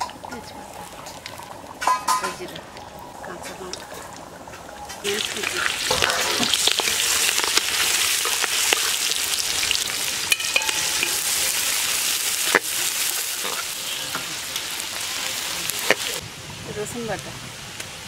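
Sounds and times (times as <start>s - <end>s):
vegetables sizzling in oil: 4.8s - 17.3s.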